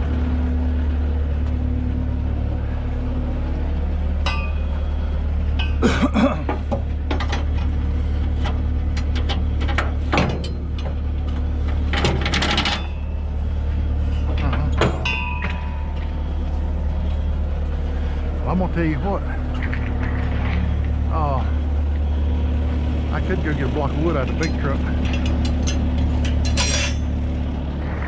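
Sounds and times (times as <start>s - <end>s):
heavy engine idling: 0.0s - 28.0s
chains clinking and rattling: 24.5s - 27.1s.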